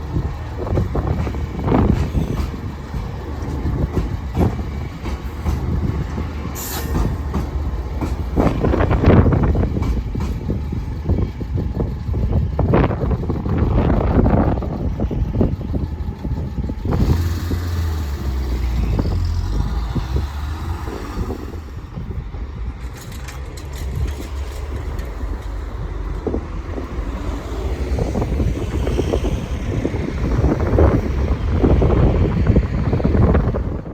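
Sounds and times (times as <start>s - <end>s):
low engine rumble: 0.0s - 33.9s
rough gusty noise: 0.0s - 33.9s
vehicles passing: 16.7s - 33.9s.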